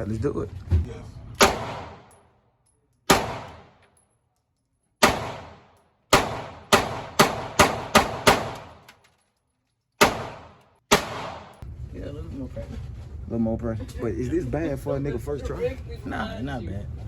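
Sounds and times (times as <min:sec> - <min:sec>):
gunshots: 0:01.4 - 0:02.1, 0:03.1 - 0:03.8, 0:05.0 - 0:08.9, 0:10.0 - 0:11.6.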